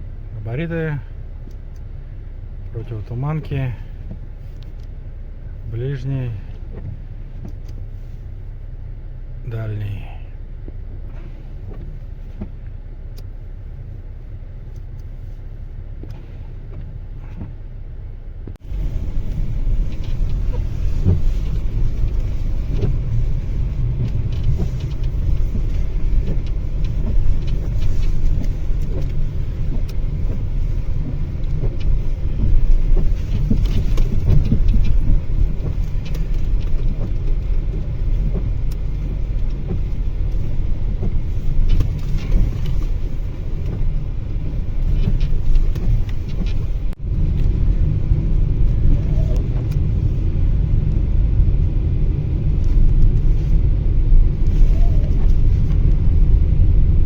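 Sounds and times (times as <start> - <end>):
car engine rumbling: 0.0 - 57.0.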